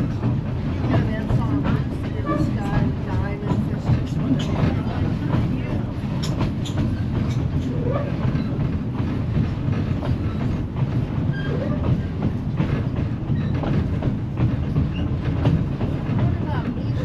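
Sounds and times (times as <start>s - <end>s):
train car rattling: 0.0s - 17.0s
train coach rumble: 0.0s - 17.0s
wheels clattering over rail joints: 0.0s - 17.0s.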